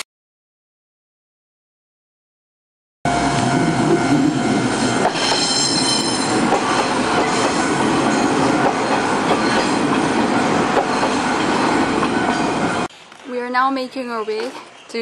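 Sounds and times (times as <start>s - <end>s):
train wheels clattering: 4.1s - 12.9s
wheel squeal: 5.0s - 12.9s.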